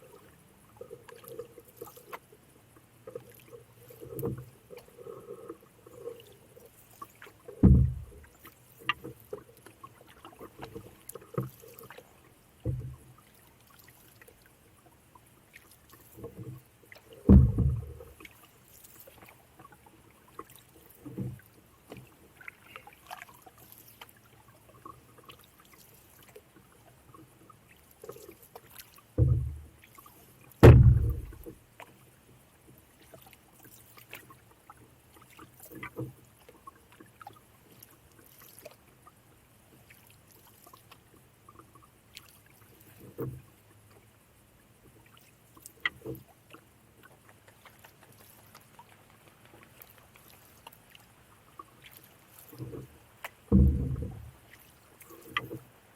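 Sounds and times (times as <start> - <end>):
paddle strokes in water: 0.0 - 55.9
knocks against canoe: 7.6 - 8.2, 12.6 - 13.0, 17.2 - 18.1, 29.2 - 29.7, 30.6 - 31.6, 53.5 - 54.4.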